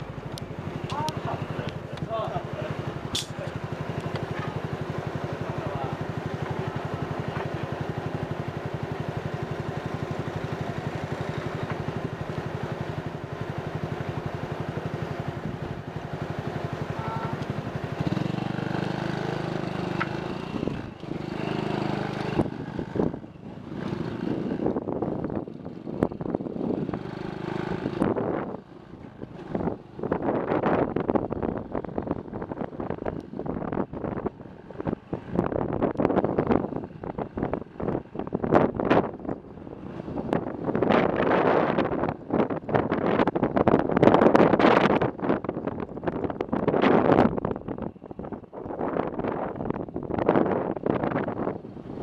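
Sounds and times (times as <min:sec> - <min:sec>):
motorcycle engine: 0:00.0 - 0:52.0
wind buffeting microphone: 0:20.2 - 0:52.0.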